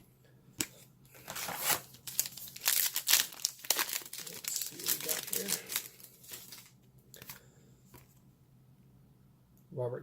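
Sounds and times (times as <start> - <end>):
wrapper crinkling and tearing: 1.2 - 7.3.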